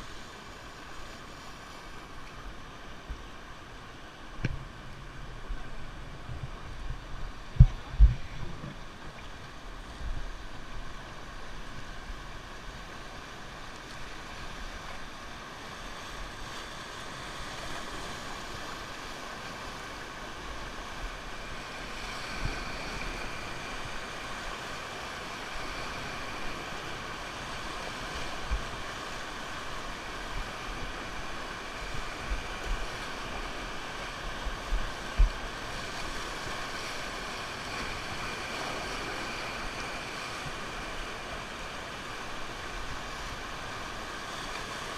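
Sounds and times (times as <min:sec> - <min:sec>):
river water rushing: 0:00.0 - 0:44.9
wind thumps on microphone: 0:06.2 - 0:08.8.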